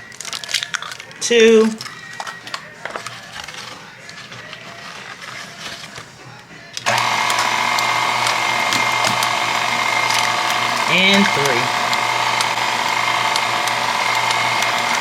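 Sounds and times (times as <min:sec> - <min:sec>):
electric mixer running: 0:06.8 - 0:15.0.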